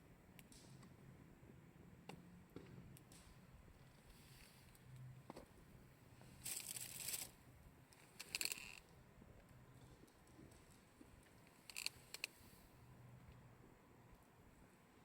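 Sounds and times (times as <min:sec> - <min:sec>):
campfire crackling: 0:00.2 - 0:13.4
rustling crinkling bursts: 0:06.3 - 0:07.4.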